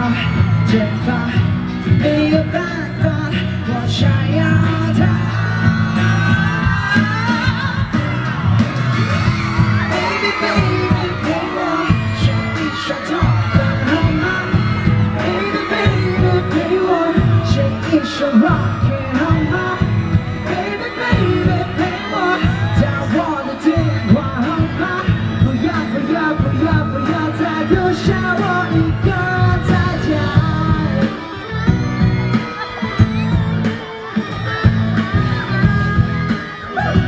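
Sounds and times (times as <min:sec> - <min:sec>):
live pop-rock band: 0:00.0 - 0:37.0
person singing: 0:00.0 - 0:37.0.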